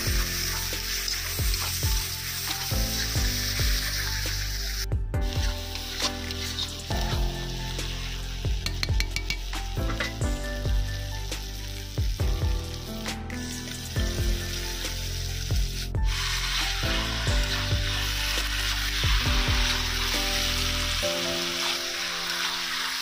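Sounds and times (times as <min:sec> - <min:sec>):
chicken sizzling in a wok: 0:00.0 - 0:23.0
music with kick-drum beat: 0:04.9 - 0:05.6, 0:08.5 - 0:11.4, 0:12.0 - 0:13.2.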